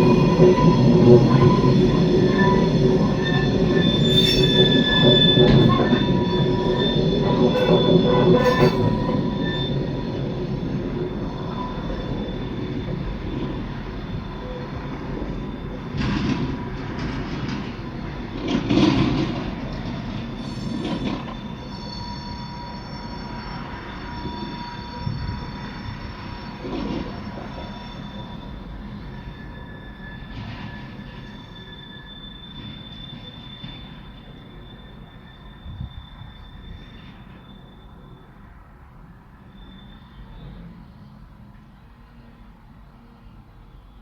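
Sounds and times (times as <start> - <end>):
low train rumble: 0.0 - 44.0
train wheels squealing: 0.0 - 44.0
knocks and clanks: 7.5 - 9.3.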